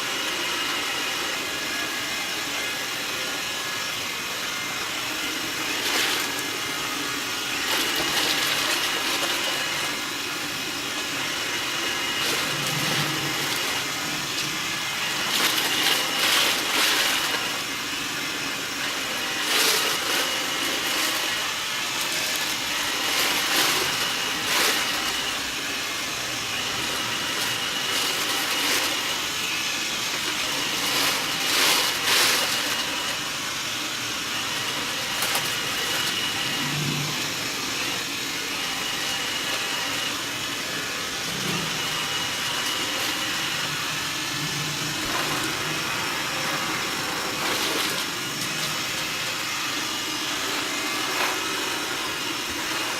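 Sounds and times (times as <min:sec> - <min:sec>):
robot vacuum whirring: 0:00.0 - 0:52.9.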